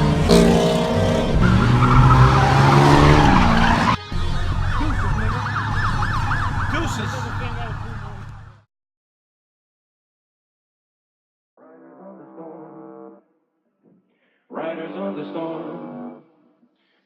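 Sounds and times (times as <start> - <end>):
car engine revving: 0.0 - 7.3
police siren yelping: 1.1 - 8.6.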